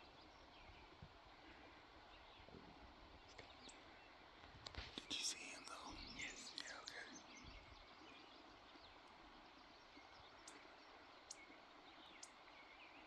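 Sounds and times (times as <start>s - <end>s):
faint ticks: 3.3s - 7.3s, 9.0s - 9.2s, 10.4s - 12.5s.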